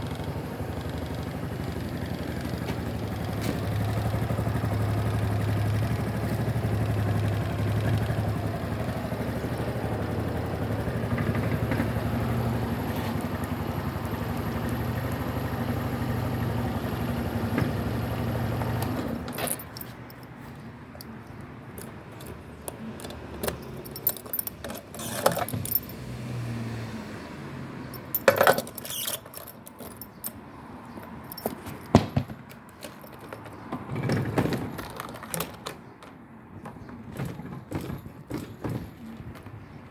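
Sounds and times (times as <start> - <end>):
motorcycle engine idling: 0.0 - 18.9
handling clicks and knocks: 16.8 - 26.0, 27.9 - 39.9.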